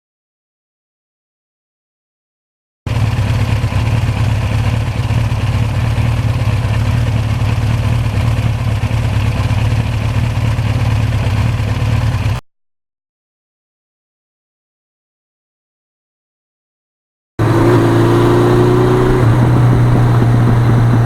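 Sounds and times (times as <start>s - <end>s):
motorcycle engine running: 2.9s - 12.4s, 17.4s - 21.0s.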